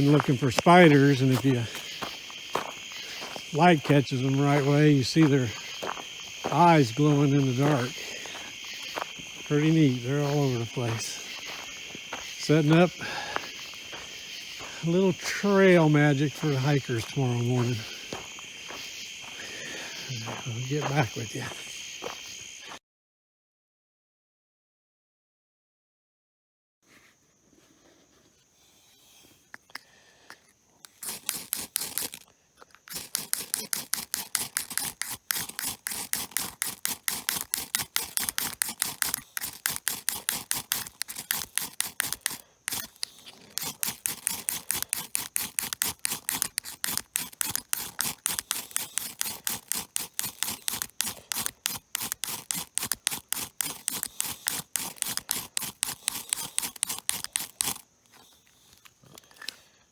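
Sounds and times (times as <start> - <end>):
rapid mechanical clicks: 32.8 - 57.8.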